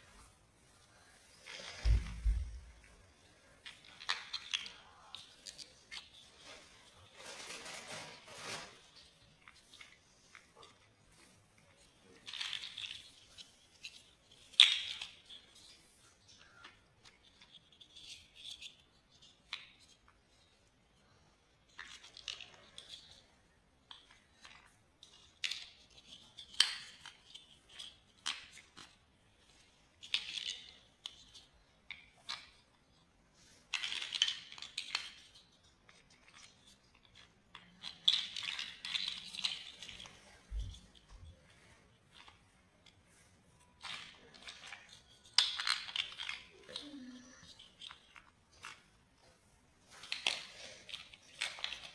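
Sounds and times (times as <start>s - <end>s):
scratchy rustles: 1.4s - 2.9s, 5.3s - 10.4s
plastic building blocks clicking: 11.8s - 15.7s, 23.8s - 32.9s, 33.5s - 41.0s, 43.8s - 48.9s, 50.0s - 51.9s.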